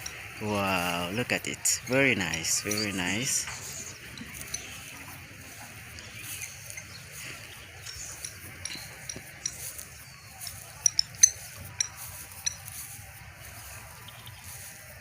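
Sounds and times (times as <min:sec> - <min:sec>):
birds chirping: 0:00.0 - 0:15.0
low steady background noise: 0:00.0 - 0:15.0.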